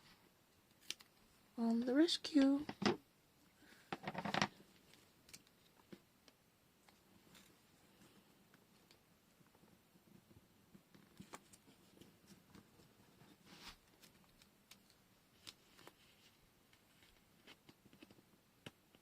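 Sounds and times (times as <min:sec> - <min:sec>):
paper rustle: 0:13.3 - 0:18.2.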